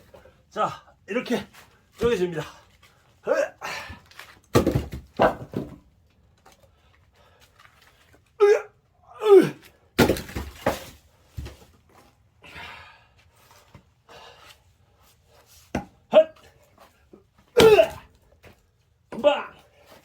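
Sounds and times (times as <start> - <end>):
wood cracking: 4.1 - 5.8, 10.0 - 11.0
axe striking firewood: 4.5 - 5.8, 10.0 - 11.5, 17.6 - 18.1
man shouting: 8.4 - 9.6, 16.1 - 16.4, 17.6 - 18.1, 19.1 - 19.6.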